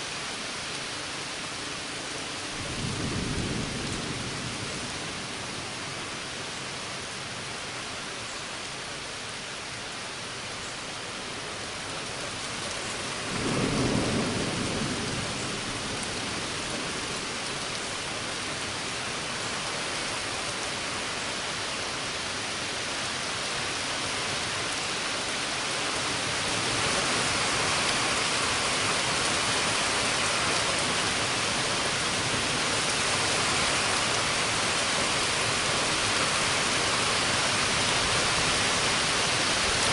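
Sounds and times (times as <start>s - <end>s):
heavy rain falling: 0.0s - 39.9s
low rumble of thunder: 2.6s - 5.5s, 13.2s - 17.6s.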